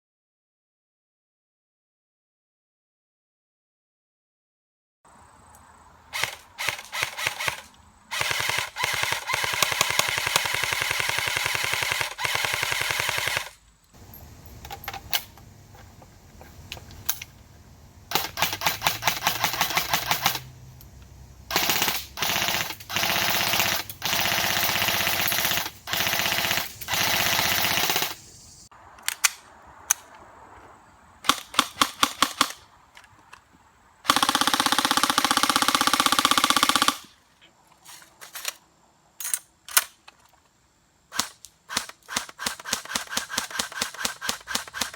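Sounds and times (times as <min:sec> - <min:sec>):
airsoft guns firing: 0:06.2 - 0:13.6, 0:18.1 - 0:20.4, 0:21.5 - 0:28.2, 0:31.2 - 0:32.6, 0:34.1 - 0:37.1, 0:41.1 - 0:44.9.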